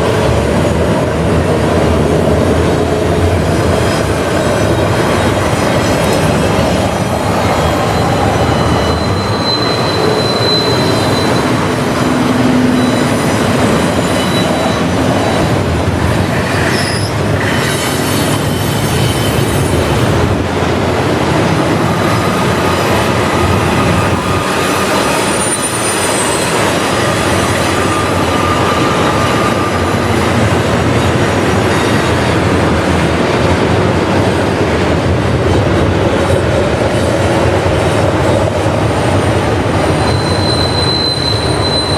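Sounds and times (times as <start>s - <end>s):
freight train wheels clattering: 0.0s - 41.9s
high wheel squeals: 4.4s - 15.7s, 16.6s - 19.9s, 22.0s - 30.4s, 39.9s - 41.9s.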